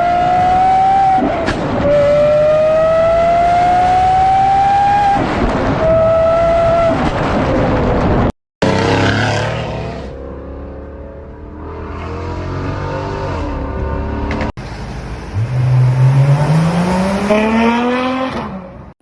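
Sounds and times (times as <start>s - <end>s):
car engine revving and accelerating: 0.0s - 7.0s, 15.4s - 18.8s.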